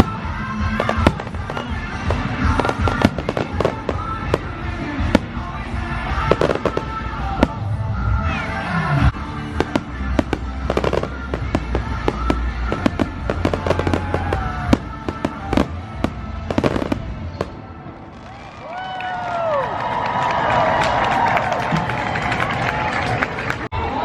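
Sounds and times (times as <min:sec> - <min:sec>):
fireworks bangs and crackles: 0:00.0 - 0:08.2, 0:09.0 - 0:18.6.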